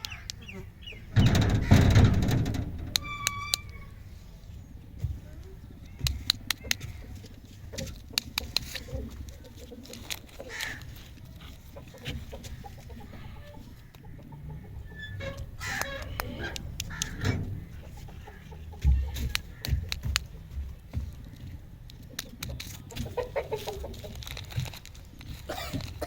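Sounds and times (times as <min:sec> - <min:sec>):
sharp clicks and taps: 0:05.0 - 0:11.3, 0:18.8 - 0:23.2.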